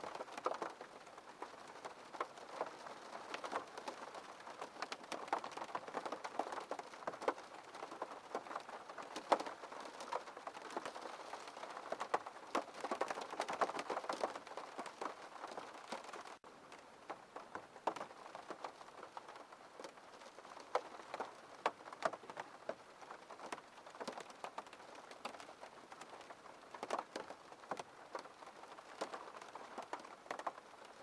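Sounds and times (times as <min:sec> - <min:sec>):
rain on a window pane: 0:00.0 - 0:31.0.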